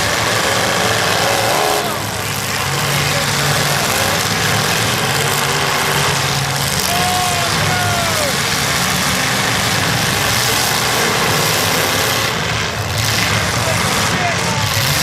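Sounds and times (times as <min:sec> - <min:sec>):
car engines running loud: 0:00.0 - 0:15.0.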